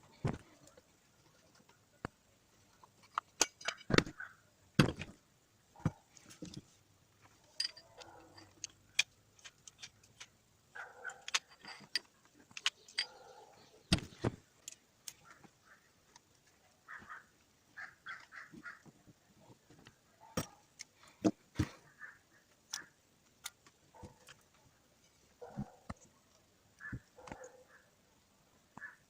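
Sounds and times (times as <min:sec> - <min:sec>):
hand tools clicking and tapping: 0:00.3 - 0:04.2, 0:07.4 - 0:15.5, 0:19.8 - 0:21.8.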